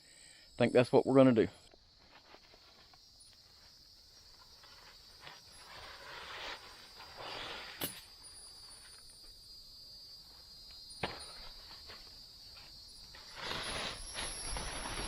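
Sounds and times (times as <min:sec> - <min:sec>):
insects buzzing: 0:00.0 - 0:15.0
rustling or scraping: 0:02.0 - 0:09.1, 0:11.1 - 0:15.0.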